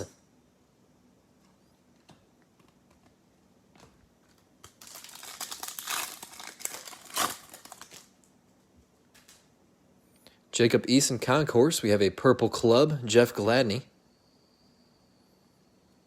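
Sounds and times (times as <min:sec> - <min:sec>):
foil wrapper crinkling and tearing: 0:04.6 - 0:08.3.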